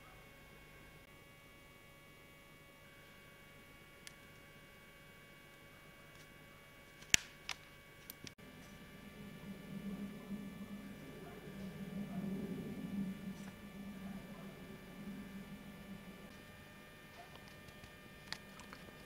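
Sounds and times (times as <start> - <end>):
faint electrical hum: 0.0 - 19.0.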